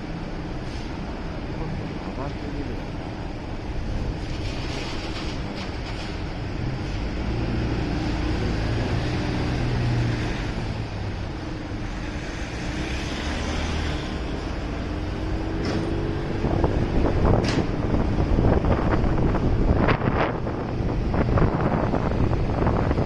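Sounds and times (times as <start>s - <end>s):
wind buffeting microphone: 15.5s - 23.0s.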